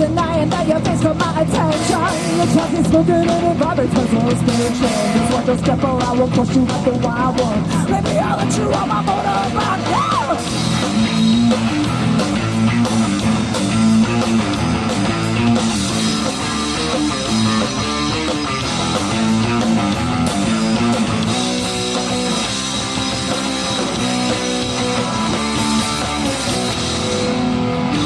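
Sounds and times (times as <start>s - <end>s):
bass guitar: 0.0s - 28.0s
distorted electric guitar: 0.0s - 28.0s
drum kit: 0.0s - 28.0s.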